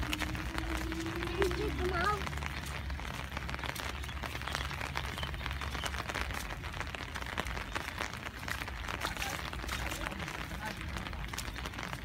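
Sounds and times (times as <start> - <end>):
low rumble: 0.0 - 6.8
rain pattering: 0.0 - 12.0.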